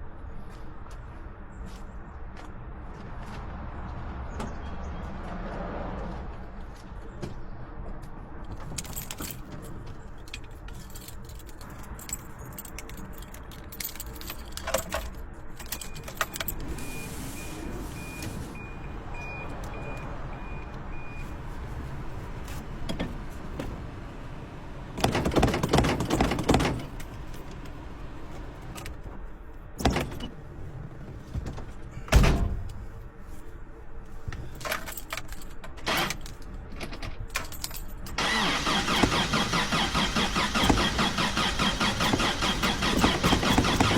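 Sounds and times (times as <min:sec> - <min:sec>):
keys jangling: 0:08.5 - 0:16.6, 0:34.5 - 0:38.2
clicks and knocks in car cab: 0:25.0 - 0:27.0.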